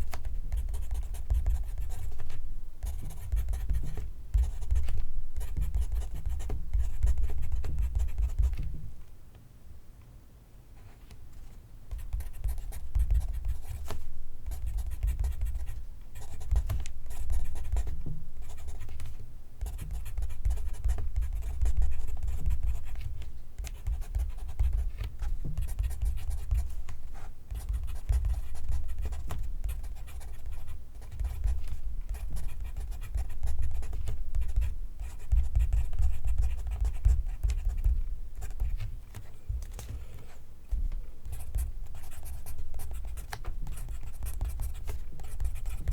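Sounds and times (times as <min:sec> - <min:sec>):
pencil scratching on paper: 0:00.5 - 0:08.6, 0:19.6 - 0:38.8, 0:41.2 - 0:45.9.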